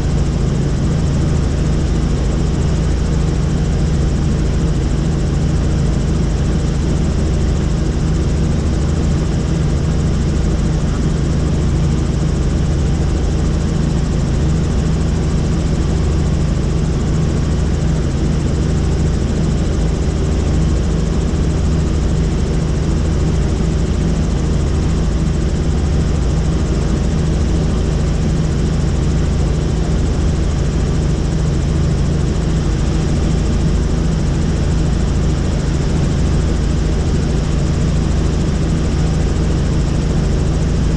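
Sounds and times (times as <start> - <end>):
helicopter engine and rotor: 0.0 - 40.9.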